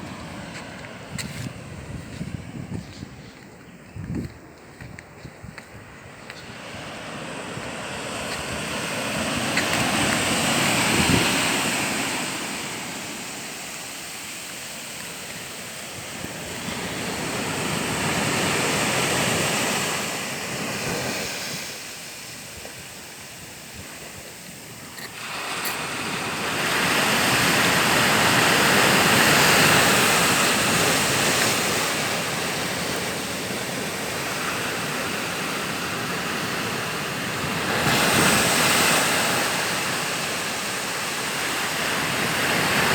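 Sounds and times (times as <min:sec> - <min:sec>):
wind on microphone: 0:00.0 - 0:13.5
sea waves breaking: 0:05.8 - 0:42.9.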